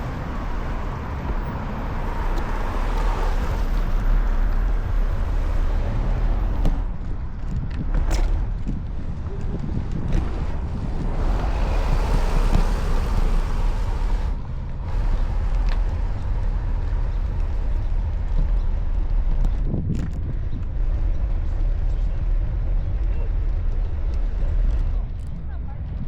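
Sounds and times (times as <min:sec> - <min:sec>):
wind rumble on microphone: 0:00.0 - 0:26.0
tyres hissing on wet road: 0:11.1 - 0:17.6.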